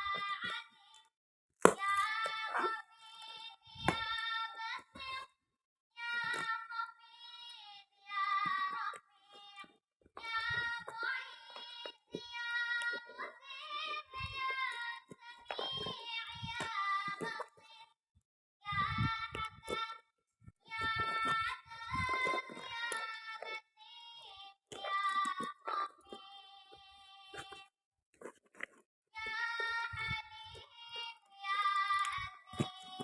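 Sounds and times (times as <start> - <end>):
high-pitched childlike singing: 0.0 - 1.1, 1.7 - 5.4, 6.0 - 18.0, 18.6 - 27.7, 29.2 - 33.0.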